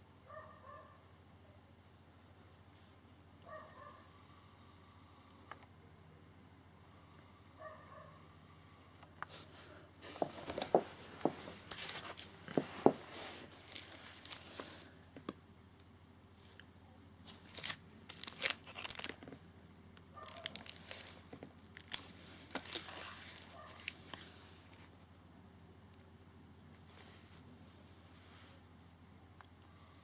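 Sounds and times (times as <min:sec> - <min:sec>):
packaging crinkling and rustling: 0:10.0 - 0:15.0, 0:17.2 - 0:19.4, 0:20.2 - 0:24.9.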